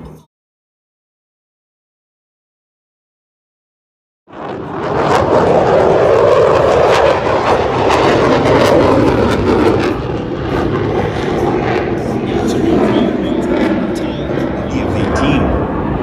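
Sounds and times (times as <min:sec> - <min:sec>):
airplane flying over: 0:04.3 - 0:16.0.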